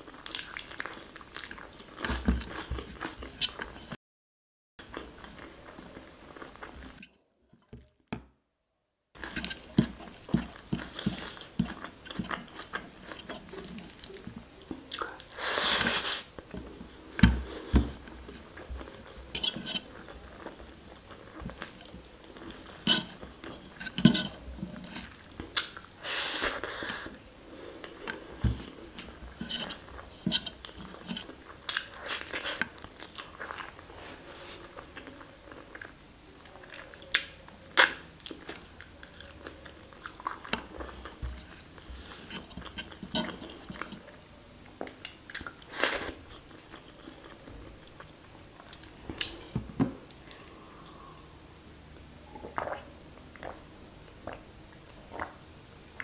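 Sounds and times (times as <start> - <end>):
wet chewing and mouth smacking: 0.1 - 3.9, 9.2 - 15.4, 16.1 - 26.0, 34.8 - 50.4.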